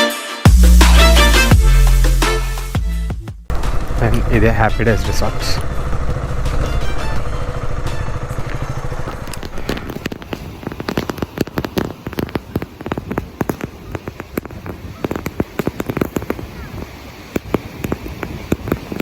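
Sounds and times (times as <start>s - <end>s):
motorcycle engine running: 3.5s - 10.0s
campfire crackling and popping: 8.3s - 19.0s.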